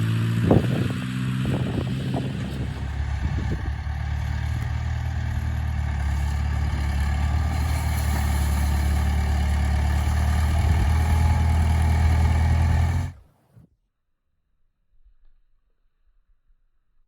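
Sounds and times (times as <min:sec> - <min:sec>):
tractor engine running: 0:00.0 - 0:13.2.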